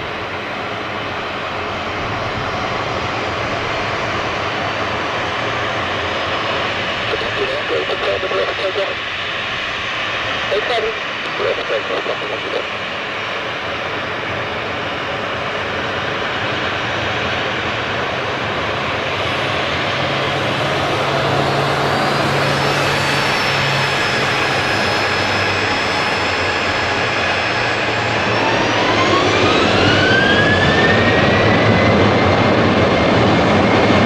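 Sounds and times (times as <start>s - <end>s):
high engine whine: 0.0s - 34.0s
jet engines running: 0.0s - 34.0s
rising engine tone: 19.8s - 34.0s.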